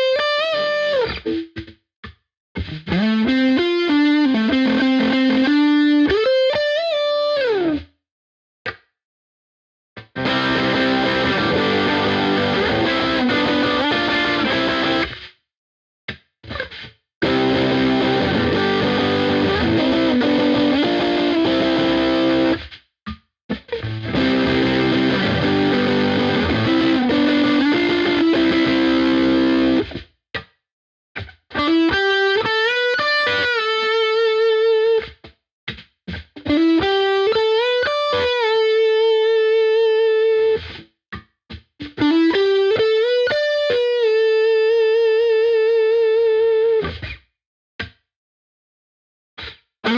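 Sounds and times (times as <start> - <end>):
distorted electric guitar: 0.0 - 1.7, 2.6 - 7.8, 10.0 - 15.2, 16.4 - 22.7, 23.5 - 30.0, 31.2 - 40.8, 41.8 - 47.2.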